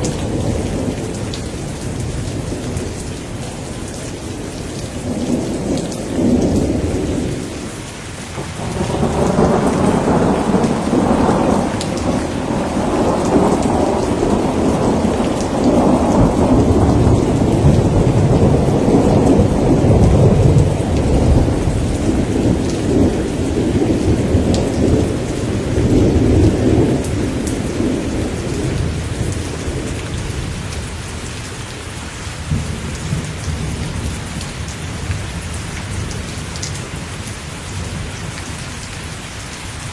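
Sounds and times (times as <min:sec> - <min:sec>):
thunder rumbling: 0:00.0 - 0:07.7, 0:08.3 - 0:31.2
heavy rain: 0:00.0 - 0:39.9.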